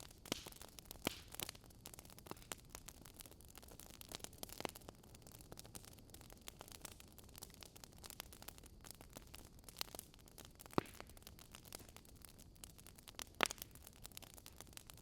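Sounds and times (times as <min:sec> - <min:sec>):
fire pops: 0:00.0 - 0:15.0
wood fire crackling: 0:00.0 - 0:15.0.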